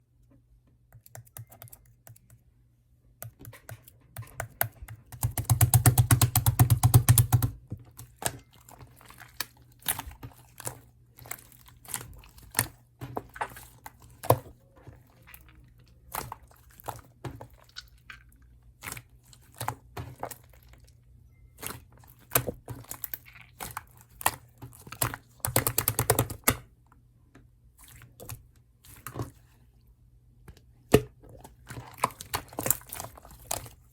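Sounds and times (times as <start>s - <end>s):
rapid crackling of slime: 4.3s - 20.9s, 21.6s - 26.7s, 31.5s - 33.9s.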